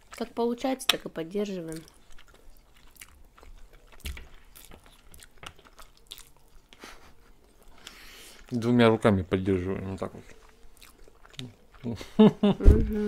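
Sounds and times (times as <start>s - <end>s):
chewing: 0.0s - 12.2s
soft low thump: 12.6s - 13.0s.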